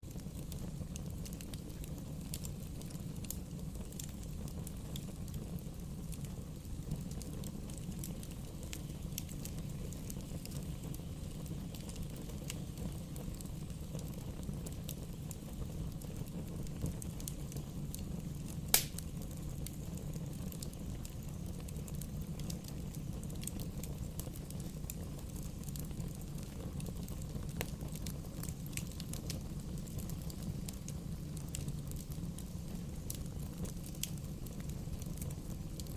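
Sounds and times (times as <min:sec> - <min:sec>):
bonfire flames rumbling: 0:00.0 - 0:35.9
fire snaps and crackles: 0:00.0 - 0:35.9
sharp loud pop: 0:18.7 - 0:19.0.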